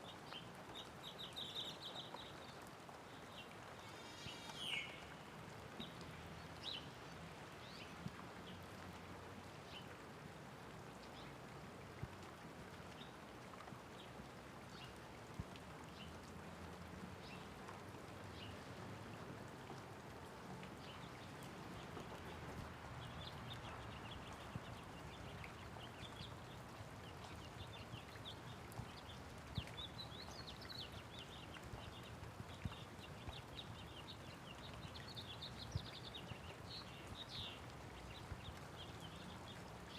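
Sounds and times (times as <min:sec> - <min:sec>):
small birds chirping: 0:00.0 - 0:08.8, 0:20.2 - 0:39.9
light rain falling: 0:00.0 - 0:39.9.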